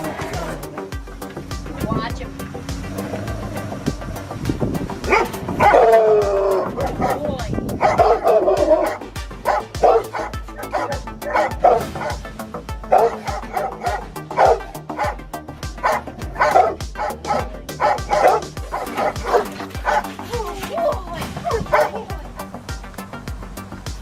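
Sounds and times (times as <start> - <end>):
background music: 0.0 - 24.0
dog barking: 5.1 - 7.2, 7.8 - 12.3, 12.9 - 15.2, 15.8 - 20.2, 21.4 - 22.0.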